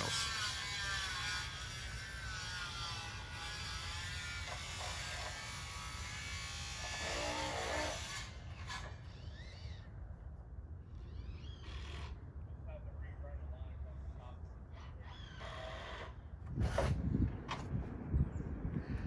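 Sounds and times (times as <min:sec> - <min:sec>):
small power tool buzzing: 0:00.0 - 0:09.8.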